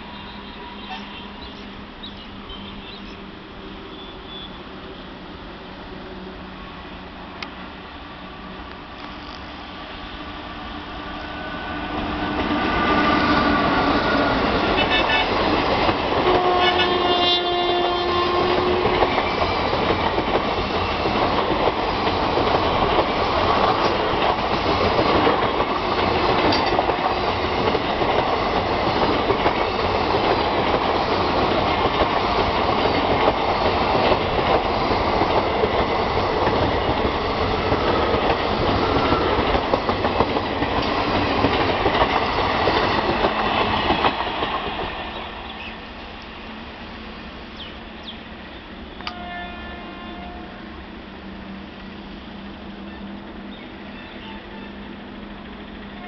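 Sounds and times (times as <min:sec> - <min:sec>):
train wheels clickety-clack: 0:11.7 - 0:46.4
train horn: 0:14.6 - 0:15.4, 0:16.2 - 0:19.0, 0:49.0 - 0:50.8, 0:52.8 - 0:54.9.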